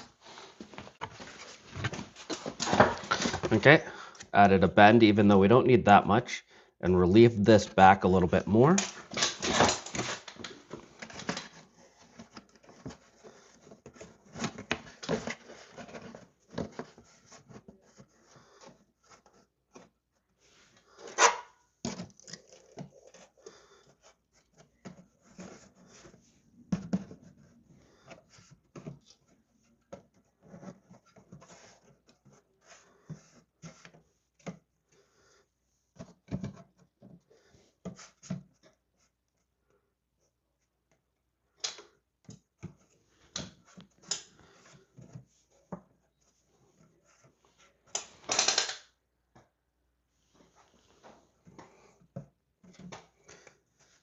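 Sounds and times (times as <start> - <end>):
cardboard rustling and scraping: 0.0 - 3.8, 8.9 - 35.1, 50.1 - 54.0.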